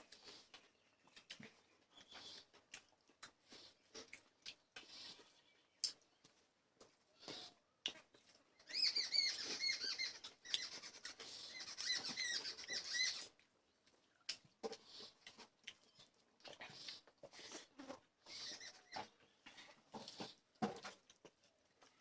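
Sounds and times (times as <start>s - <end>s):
wet chewing: 0.0s - 8.7s, 10.1s - 22.0s
lip smacks: 1.1s - 6.1s
high squeaky chirps: 8.6s - 13.3s, 18.3s - 19.1s.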